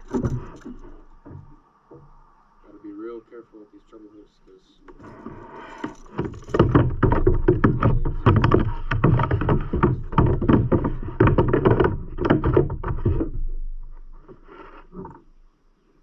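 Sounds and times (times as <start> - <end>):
knocks and rattles on kayak hull: 0.0 - 2.3, 4.9 - 15.4.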